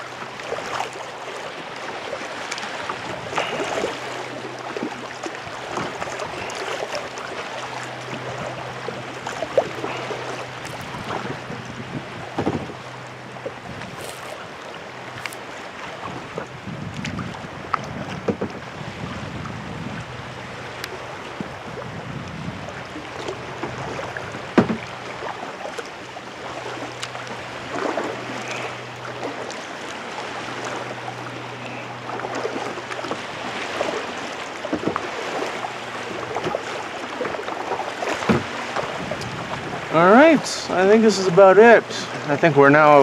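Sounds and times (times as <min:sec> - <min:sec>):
paddle blades splashing: 0:00.0 - 0:43.0
water lapping against hull: 0:00.0 - 0:43.0
wind buffeting microphone: 0:08.1 - 0:25.3, 0:38.2 - 0:40.5.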